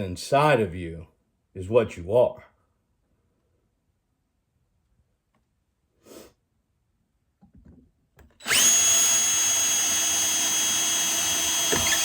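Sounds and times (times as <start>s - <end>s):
power tool whining: 8.4s - 12.0s.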